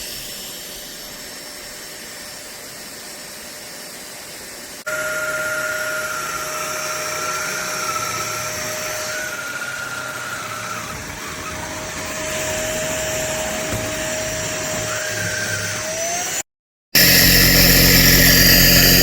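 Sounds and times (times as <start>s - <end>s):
stick vacuum motor whirring: 4.8s - 16.4s, 17.0s - 19.0s.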